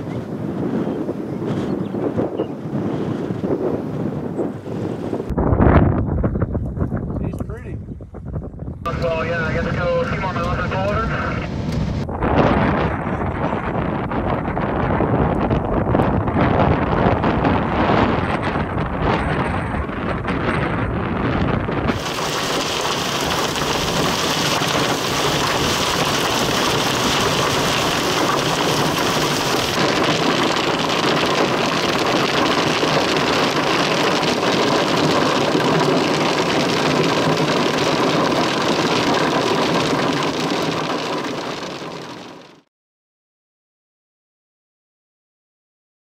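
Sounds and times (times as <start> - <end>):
wind buffeting microphone: 0.0 - 42.2
heavy rain pelting a vehicle: 21.9 - 42.6.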